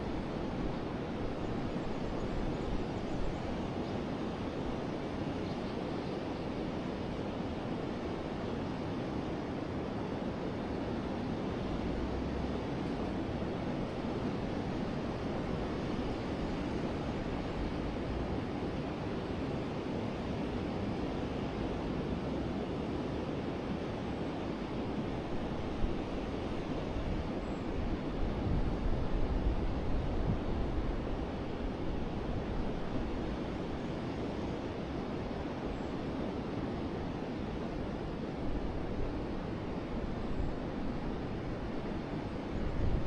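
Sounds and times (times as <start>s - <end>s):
wind gusts on microphone: 24.4s - 43.0s.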